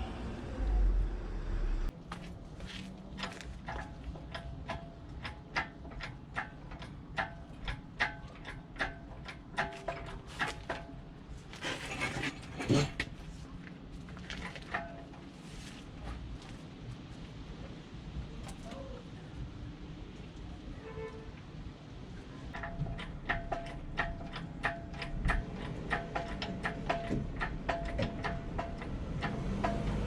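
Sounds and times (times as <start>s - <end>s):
noisy clatter: 22.5s - 30.0s.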